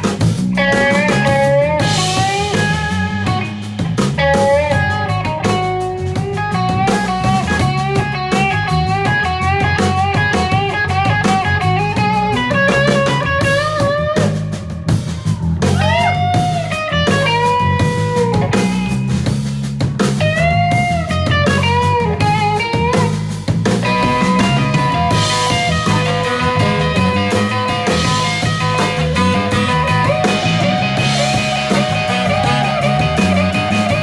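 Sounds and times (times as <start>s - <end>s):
bass: 0.0s - 34.0s
drum kit: 0.0s - 34.0s
lead guitar melody: 0.0s - 34.0s.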